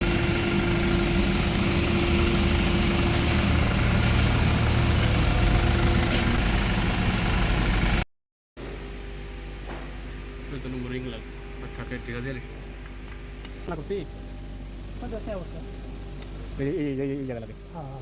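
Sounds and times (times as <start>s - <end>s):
diesel engine idling: 0.0s - 8.0s, 13.7s - 18.0s.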